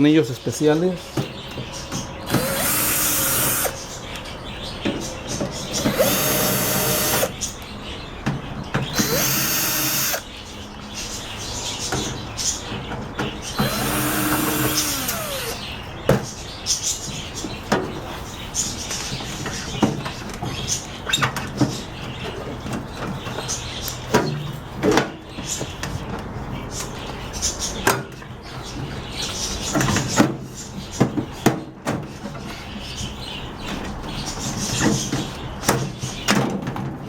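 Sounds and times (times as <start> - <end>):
screwdriver whir: 2.3 - 3.8, 5.8 - 7.4, 8.9 - 10.2, 13.6 - 15.6.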